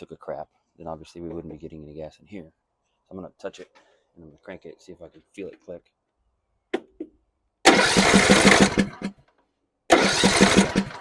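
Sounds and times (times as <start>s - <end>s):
engine cranking on starter: 7.7s - 9.2s, 9.9s - 11.0s.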